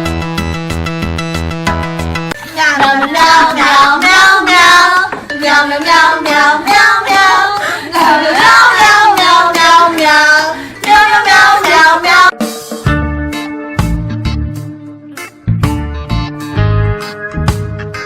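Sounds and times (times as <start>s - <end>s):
child-like voice singing: 2.4s - 12.3s.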